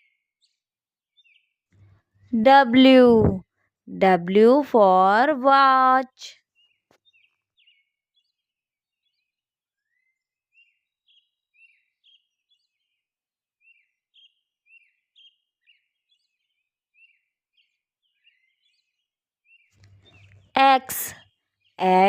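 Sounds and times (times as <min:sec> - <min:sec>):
faint birdsong chirps: 0:01.2 - 0:02.4, 0:06.6 - 0:22.0.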